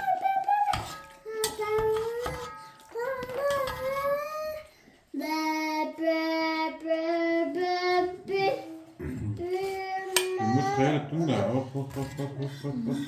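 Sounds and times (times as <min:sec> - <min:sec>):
child singing: 0:00.0 - 0:11.6.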